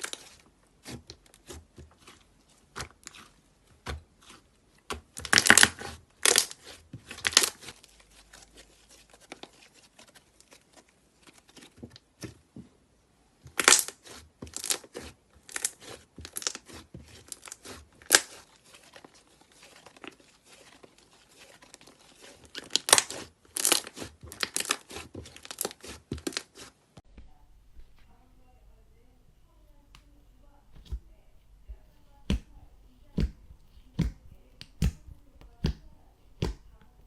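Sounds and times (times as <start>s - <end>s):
slime crackling and popping: 0.0s - 7.8s, 13.6s - 26.6s.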